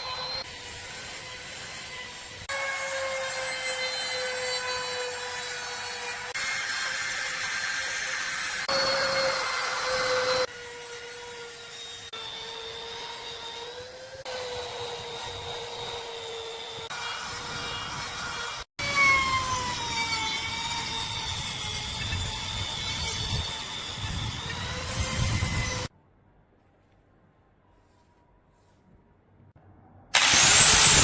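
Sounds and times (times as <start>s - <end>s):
power tool motor whining: 30.2s - 31.0s.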